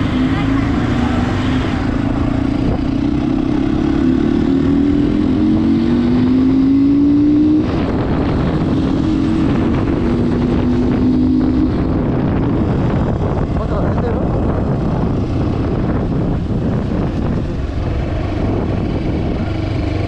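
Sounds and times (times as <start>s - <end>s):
motorcycle engine running: 0.0s - 20.0s
wind rush over microphone: 0.0s - 20.0s.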